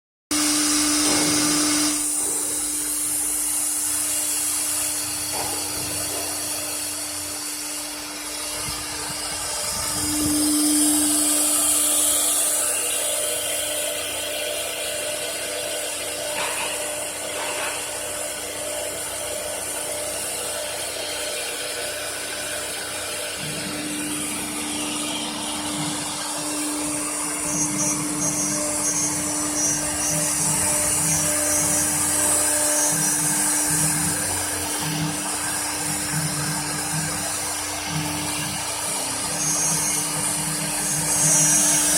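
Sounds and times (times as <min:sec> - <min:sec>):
router spindle whine and hiss: 0:00.3 - 0:41.9.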